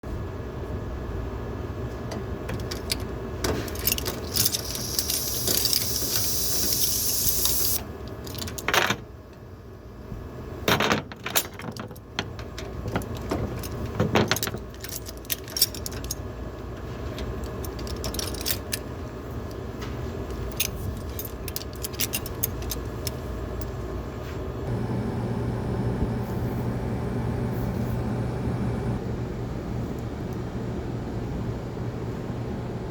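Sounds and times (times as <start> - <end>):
steady low hum: 0.1 - 32.9
metal fittings and tools clinking: 2.5 - 9.0, 11.2 - 16.2, 17.1 - 18.8, 20.3 - 23.8
refrigerant gas hissing: 4.2 - 7.8.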